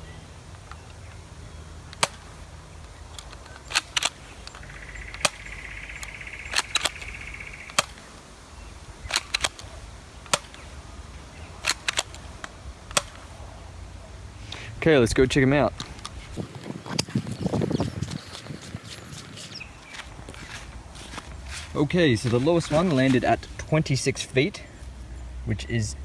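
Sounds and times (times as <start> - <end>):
toy gun clicking and snapping: 2.0 - 2.3, 3.1 - 8.1, 9.1 - 10.7, 11.6 - 13.3.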